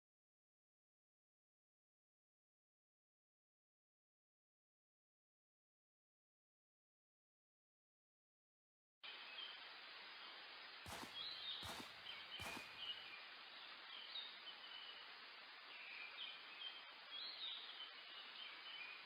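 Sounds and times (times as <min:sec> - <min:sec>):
small birds chirping: 0:10.9 - 0:15.0.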